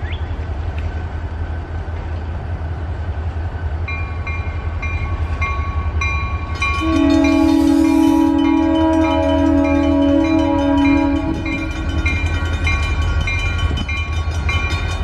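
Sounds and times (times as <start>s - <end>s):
train rumbling: 0.0s - 15.0s
train horn chord: 6.8s - 12.1s.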